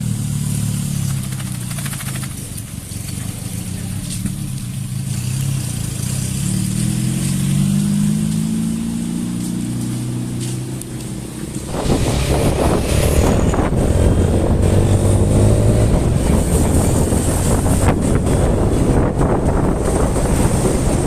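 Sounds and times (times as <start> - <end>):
vehicle engine pulling away: 0.0 - 21.0
wind buffeting microphone: 8.7 - 21.0.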